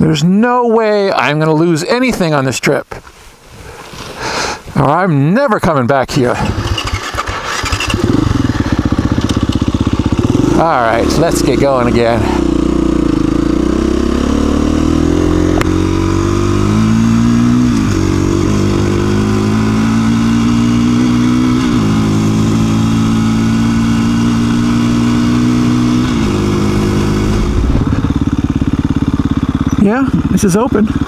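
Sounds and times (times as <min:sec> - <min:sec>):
motorcycle engine accelerating: 0:06.3 - 0:31.0.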